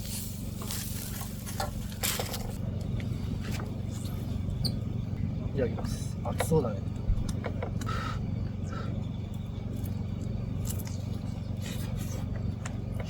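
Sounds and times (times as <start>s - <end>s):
low hum: 0.0s - 13.0s
wet clicks and crunches: 9.7s - 11.9s.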